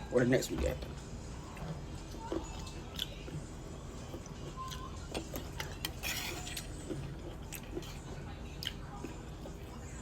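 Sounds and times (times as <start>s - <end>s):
low room hum: 0.0s - 10.0s
cutlery and dishes clinking: 5.2s - 7.1s.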